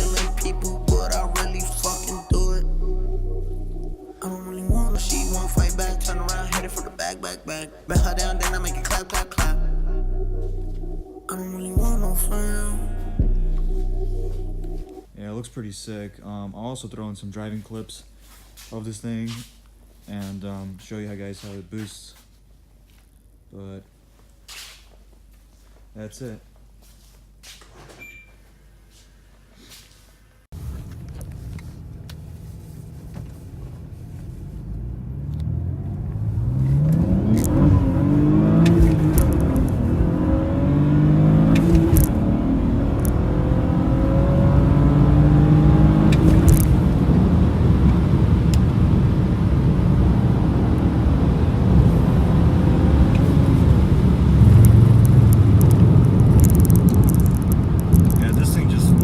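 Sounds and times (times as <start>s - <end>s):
car engine accelerating: 0.0s - 4.1s, 4.7s - 15.0s, 30.6s - 59.0s.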